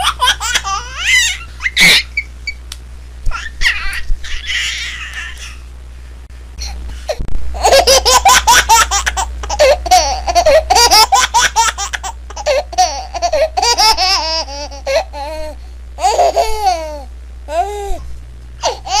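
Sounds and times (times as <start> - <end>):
young child laughing: 0.0 - 2.3, 3.3 - 5.6, 16.0 - 18.0.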